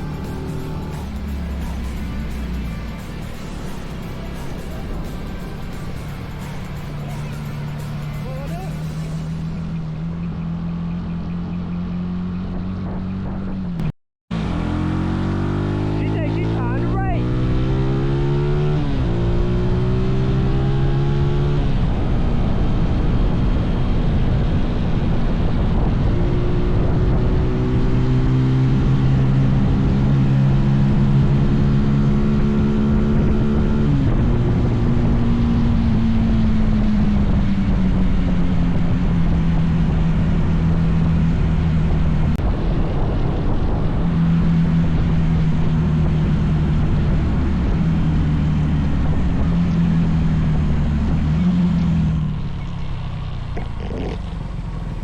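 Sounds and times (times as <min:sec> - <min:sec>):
wind buffeting microphone: 0:32.9 - 0:51.2.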